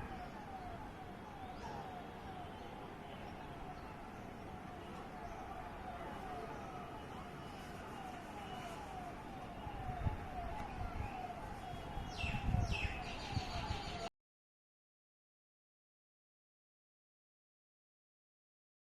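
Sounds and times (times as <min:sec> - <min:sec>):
emergency siren falling tone: 0:00.0 - 0:14.1.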